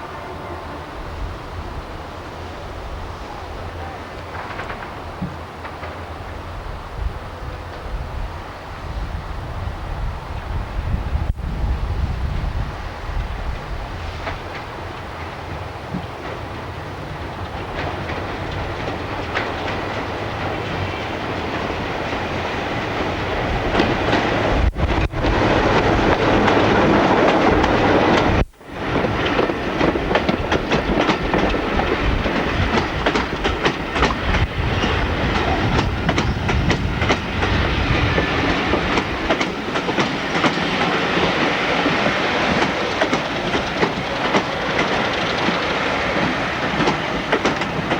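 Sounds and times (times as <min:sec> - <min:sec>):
train wheels clattering: 0:04.0 - 0:06.6, 0:13.1 - 0:47.9.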